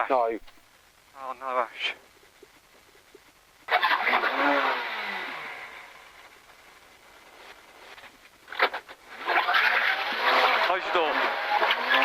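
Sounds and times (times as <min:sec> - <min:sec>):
rally car engine at high revs: 0:03.7 - 0:06.4, 0:08.5 - 0:12.0.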